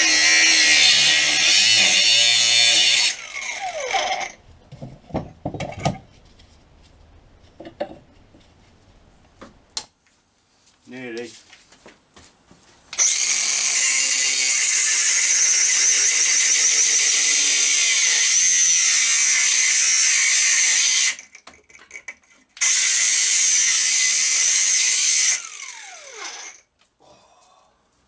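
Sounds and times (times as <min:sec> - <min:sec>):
angle grinder cutting metal: 0:00.0 - 0:04.4, 0:13.0 - 0:21.3, 0:22.6 - 0:26.6
grinder disc winding down: 0:00.0 - 0:04.4, 0:22.6 - 0:26.6.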